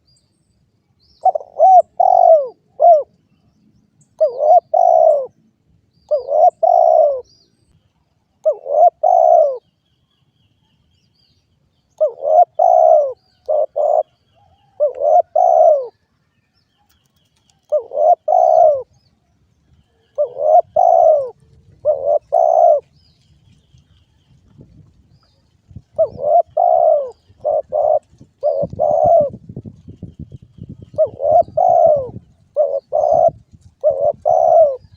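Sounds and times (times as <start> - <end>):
small birds chirping: 0.0 - 24.2, 25.1 - 34.9
dove cooing: 1.2 - 3.1, 4.2 - 5.4, 6.1 - 7.3, 8.4 - 9.6, 12.0 - 16.0, 17.6 - 19.0, 19.9 - 23.0, 25.9 - 29.7, 30.7 - 34.9.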